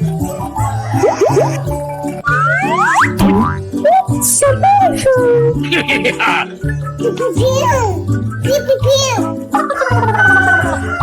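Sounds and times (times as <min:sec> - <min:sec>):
children's music with bass line: 0:00.0 - 0:11.0
cartoonish falling gliding tone: 0:02.2 - 0:03.7.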